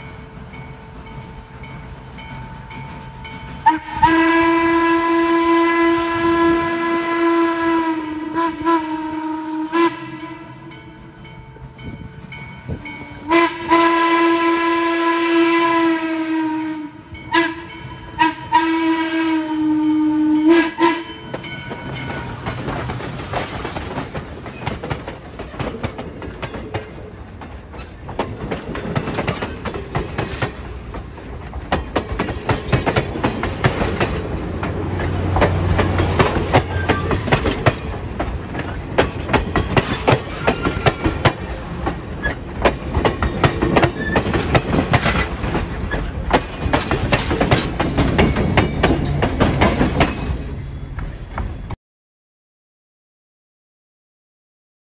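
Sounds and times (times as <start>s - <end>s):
steam locomotive whistle blasts: 3.6s - 10.9s, 12.9s - 21.6s
wheels clicking over rail joints: 21.2s - 51.6s.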